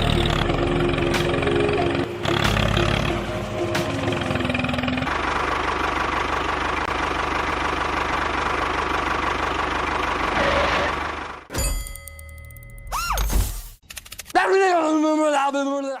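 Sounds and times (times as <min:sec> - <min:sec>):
engine idling with chugging pulse: 0:00.0 - 0:11.5.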